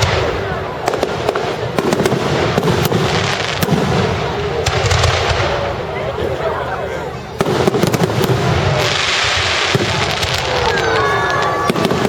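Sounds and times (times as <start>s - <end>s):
fireworks crackling pops: 0.0s - 6.0s, 7.4s - 12.0s
fireworks whistles: 7.3s - 12.0s
fireworks hiss: 7.4s - 12.0s.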